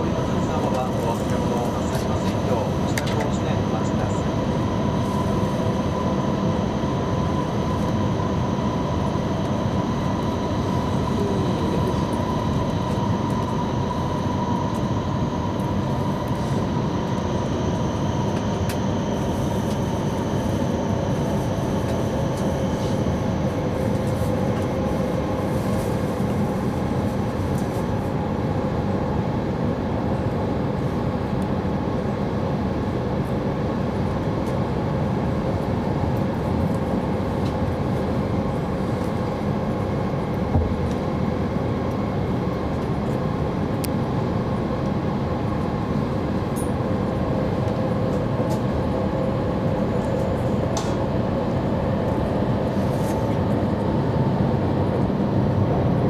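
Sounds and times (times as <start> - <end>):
train cabin low rumble: 0.0 - 6.0.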